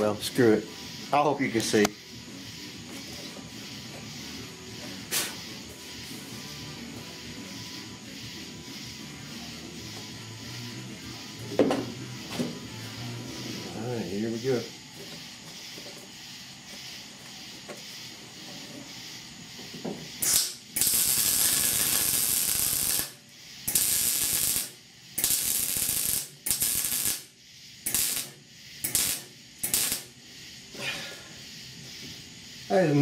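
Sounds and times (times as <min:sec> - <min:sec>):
welding arc crackling: 0:20.1 - 0:30.2.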